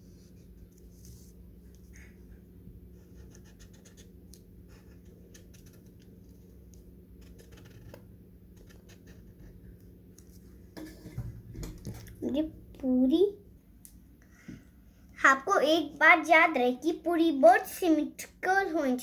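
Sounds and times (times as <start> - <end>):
steady low hum: 0.0 - 19.0
marker scratching on paper: 3.0 - 6.1, 7.2 - 8.0, 8.6 - 9.7.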